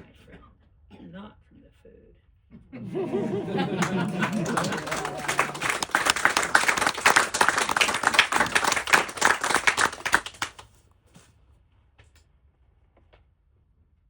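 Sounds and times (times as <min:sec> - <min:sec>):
small audience applauding: 0:02.8 - 0:10.7.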